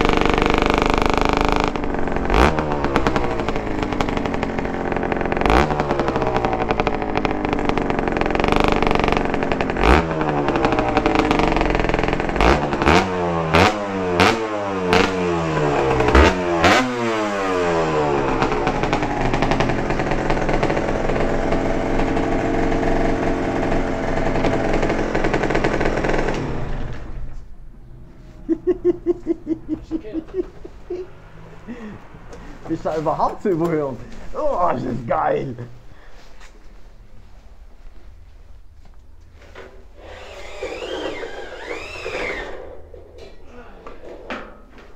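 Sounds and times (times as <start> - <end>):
two-stroke engine revving with pops: 0.0 - 27.5, 39.2 - 43.5.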